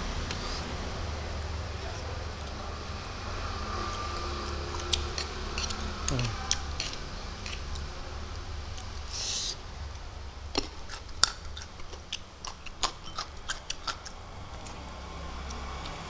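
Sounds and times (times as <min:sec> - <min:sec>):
man chewing with mouth open: 0:03.5 - 0:07.9, 0:08.7 - 0:16.0.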